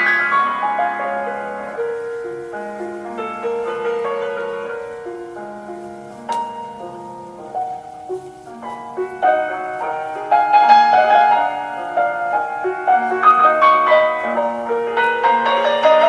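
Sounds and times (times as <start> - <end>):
classical piano piece: 0.0 - 16.0.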